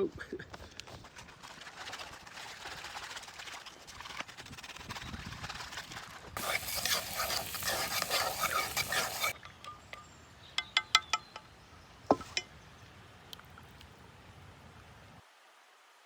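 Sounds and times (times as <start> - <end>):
dough stirred in bowl: 6.4 - 9.4.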